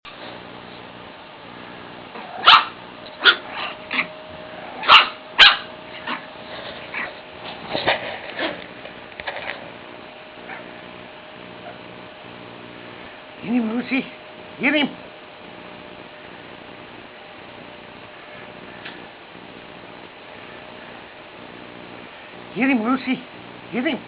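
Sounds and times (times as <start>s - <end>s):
puppy barking and yipping: 2.3s - 7.2s, 10.4s - 10.8s.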